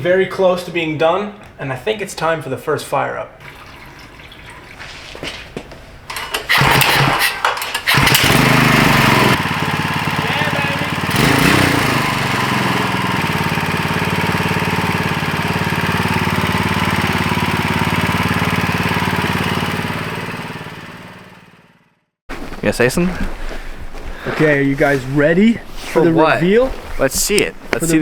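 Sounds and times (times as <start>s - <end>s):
small engine starting and idling: 6.1s - 22.0s.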